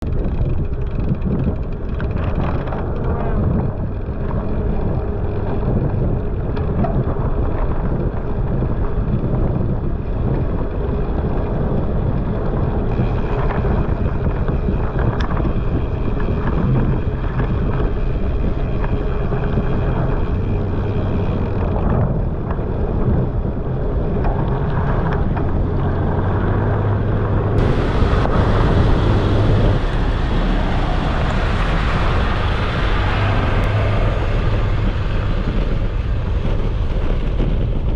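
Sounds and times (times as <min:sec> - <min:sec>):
wind buffeting microphone: 0:00.0 - 0:37.9
truck engine passing: 0:25.6 - 0:37.9.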